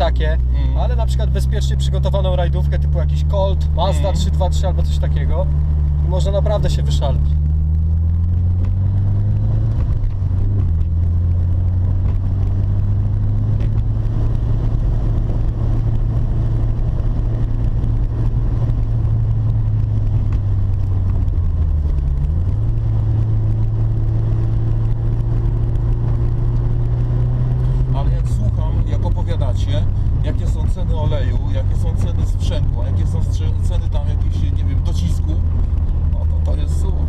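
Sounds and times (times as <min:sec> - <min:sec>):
car engine from inside cabin: 0:00.0 - 0:37.0
road noise: 0:00.0 - 0:37.0.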